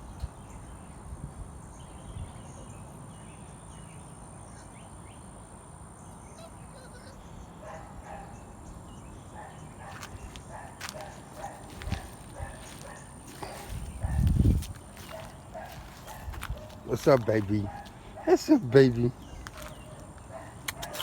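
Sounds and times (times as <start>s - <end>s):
puppies yipping and whimpering: 6.4s - 8.3s.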